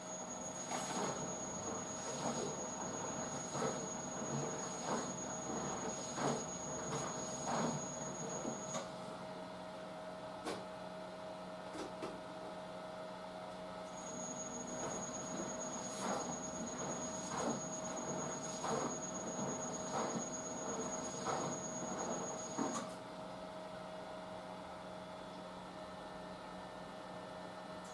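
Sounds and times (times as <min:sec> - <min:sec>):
washing machine motor hum: 0:00.0 - 0:09.0, 0:13.9 - 0:22.8.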